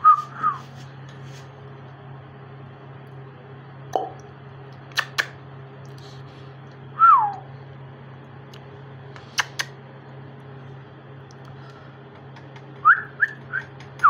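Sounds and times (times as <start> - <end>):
steady low hum: 0.0 - 14.0
parrot whistle: 12.8 - 13.8.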